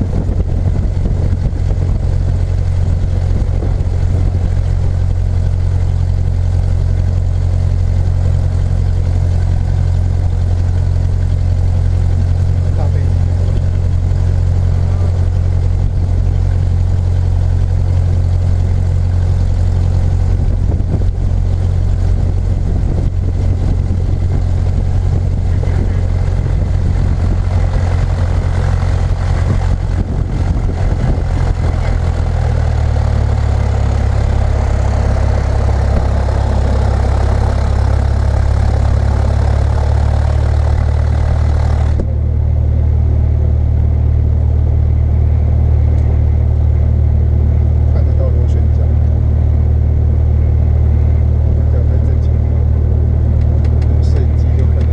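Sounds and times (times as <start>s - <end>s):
engine droning: 0.0s - 54.9s.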